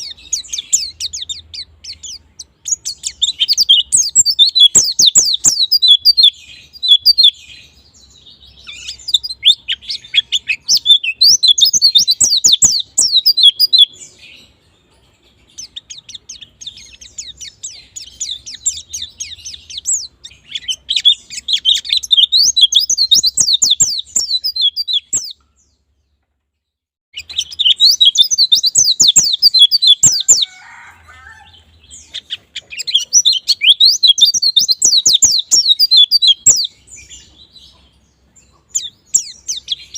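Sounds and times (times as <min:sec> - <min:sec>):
bird chattering and twittering: 0:00.0 - 0:26.2, 0:27.2 - 0:39.9.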